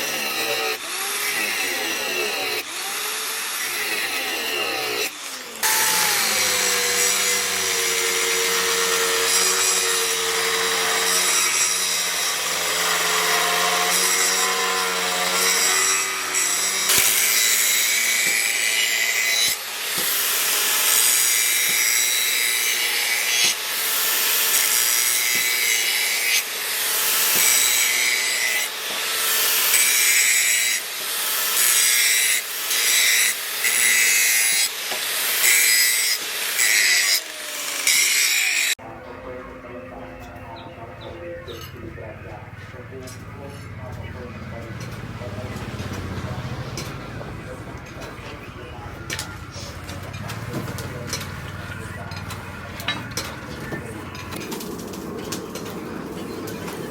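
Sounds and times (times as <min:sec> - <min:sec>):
power tool motor running: 0:00.0 - 0:38.8
rasping grinding strokes: 0:00.0 - 0:38.8, 0:42.1 - 0:56.9.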